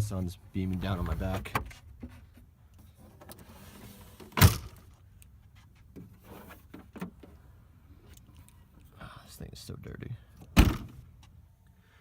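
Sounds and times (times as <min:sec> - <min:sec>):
car door slamming: 0:10.6 - 0:11.0.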